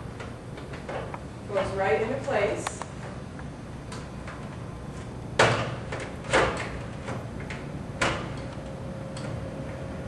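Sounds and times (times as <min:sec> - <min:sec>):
sharp plastic knocks: 0:05.4 - 0:08.4.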